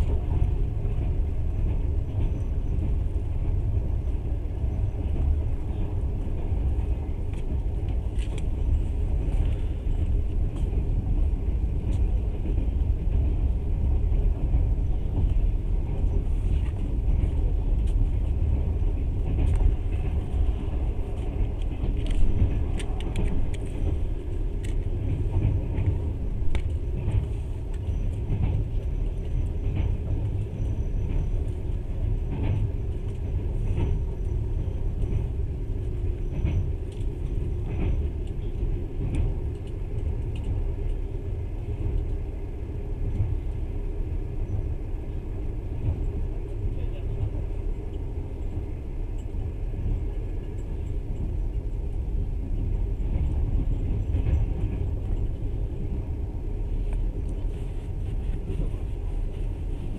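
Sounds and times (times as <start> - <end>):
train wheels rumbling: 0.0 - 59.9.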